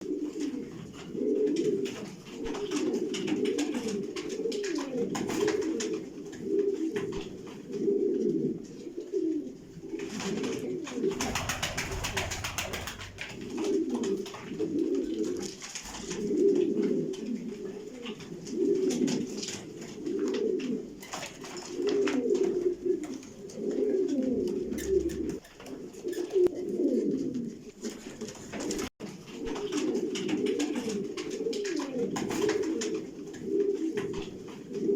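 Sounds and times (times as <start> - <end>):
pigeons cooing: 0.0 - 34.9.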